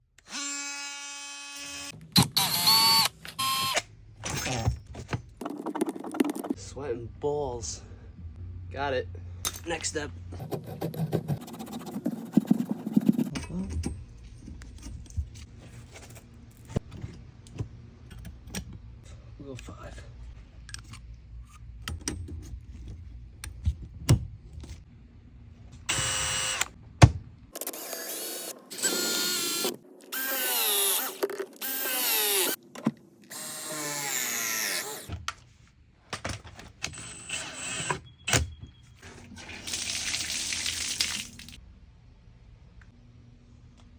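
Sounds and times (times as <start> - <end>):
power drill whining: 0.3 - 3.8, 25.9 - 26.7, 27.6 - 32.6, 33.3 - 35.1, 36.9 - 38.0.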